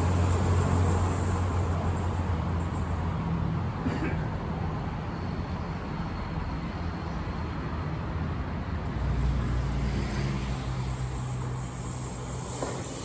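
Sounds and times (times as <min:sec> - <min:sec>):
electric train rumbling past: 0:00.0 - 0:03.6, 0:04.8 - 0:13.0.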